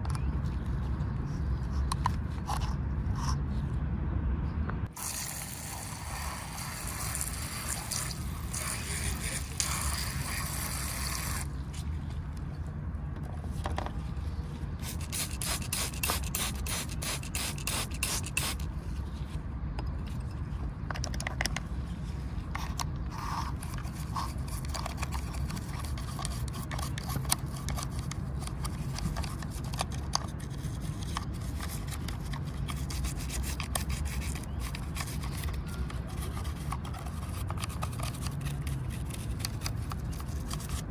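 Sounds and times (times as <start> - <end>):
hissing spray: 5.0 - 11.5
scraping mud off toy car: 5.0 - 12.2, 21.2 - 40.9.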